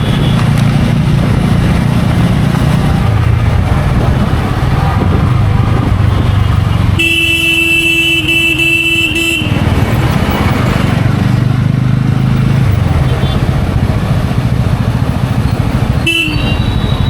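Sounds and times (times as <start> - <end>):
motorcycle engine running: 0.0 - 17.0
vehicle horn blaring: 6.2 - 9.8, 16.0 - 17.0.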